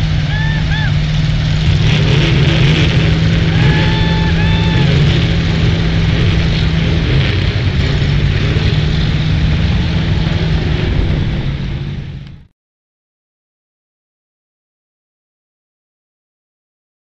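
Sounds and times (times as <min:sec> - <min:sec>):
truck engine running loud: 0:00.0 - 0:12.5.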